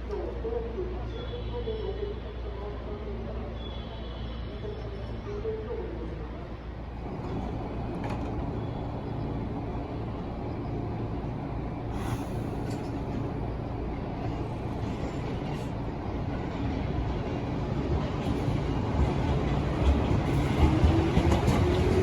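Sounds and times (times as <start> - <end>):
train wheels rumbling: 6.8 - 22.0.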